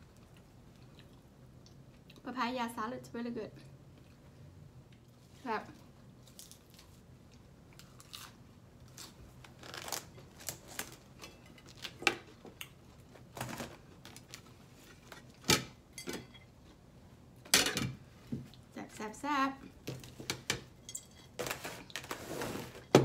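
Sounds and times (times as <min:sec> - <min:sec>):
crunchy chewing: 0:06.3 - 0:09.2.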